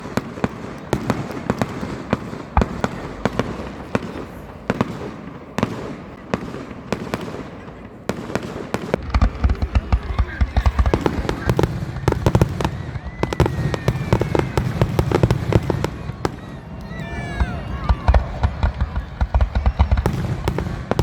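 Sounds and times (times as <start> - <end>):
fireworks bangs and crackles: 0.0 - 21.0
heavy deep fireworks booms: 0.0 - 21.0.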